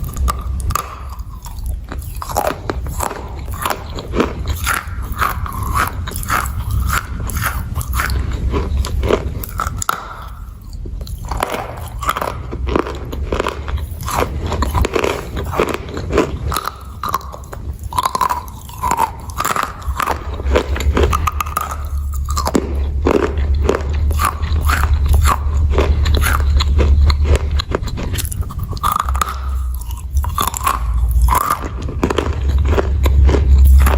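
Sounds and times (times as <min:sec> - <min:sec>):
crunchy clay being chewed: 0:00.0 - 0:33.9
steady low hum: 0:00.0 - 0:33.9.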